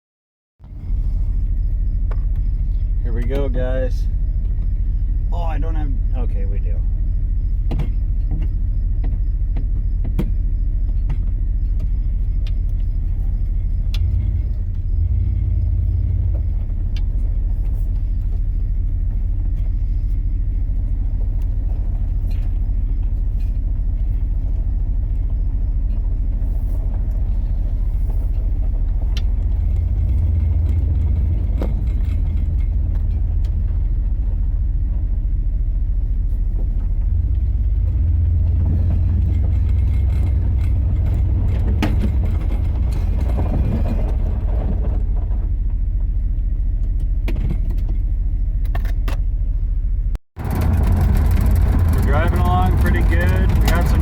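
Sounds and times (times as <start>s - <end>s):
car engine low drone: 0.6s - 54.0s
light clicks and rattles: 50.6s - 54.0s.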